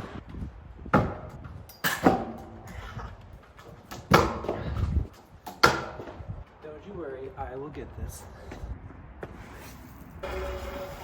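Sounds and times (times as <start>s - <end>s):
scooter slamming on concrete: 2.0s - 2.8s, 3.9s - 4.8s, 5.4s - 6.2s.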